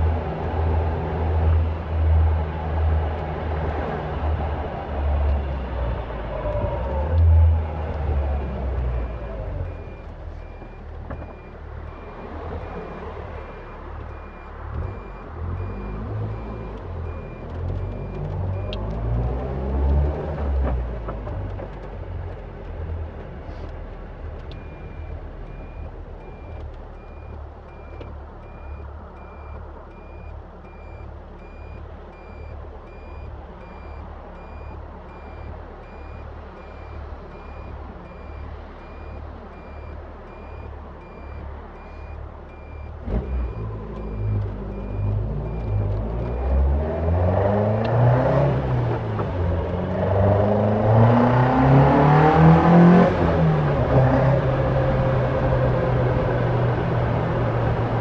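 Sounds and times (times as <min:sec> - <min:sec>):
car accelerating: 0:00.0 - 0:58.0
car engine idling: 0:06.3 - 0:18.9.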